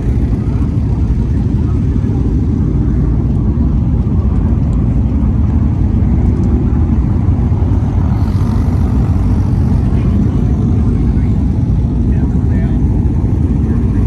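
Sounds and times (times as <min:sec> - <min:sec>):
race car engines rumbling: 0:00.0 - 0:14.0.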